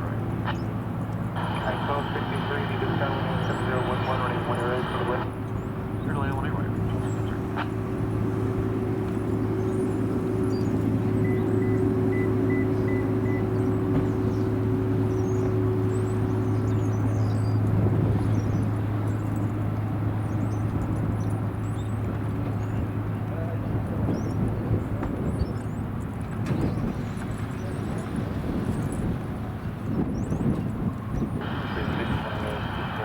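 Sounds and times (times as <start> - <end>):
steady whining tone: 0.0 - 5.6, 31.0 - 33.0
jet engines rumbling: 0.0 - 33.0.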